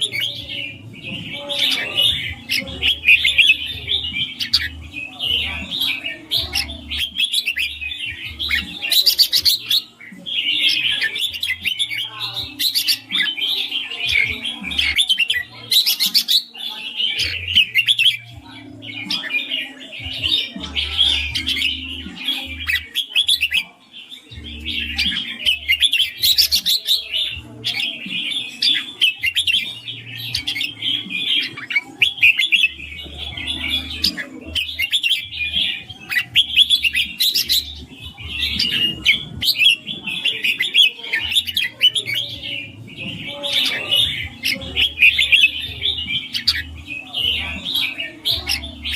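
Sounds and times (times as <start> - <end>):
bird singing chirpy phrases: 0.0 - 48.9.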